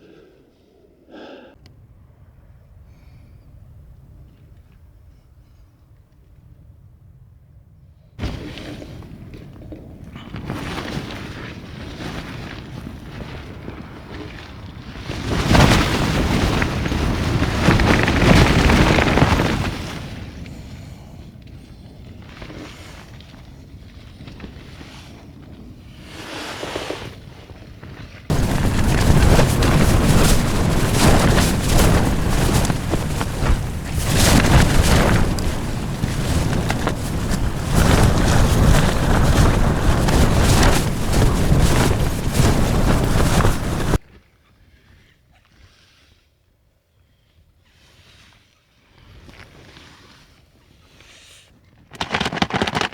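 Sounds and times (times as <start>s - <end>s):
wind buffeting microphone: 8.2s - 21.2s, 28.3s - 44.0s.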